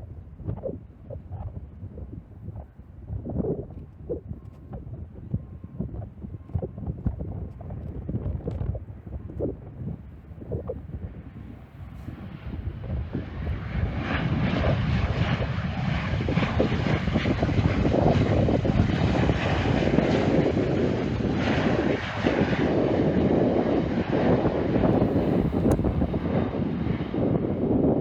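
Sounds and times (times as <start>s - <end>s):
jet engines rumbling: 11.8s - 27.8s.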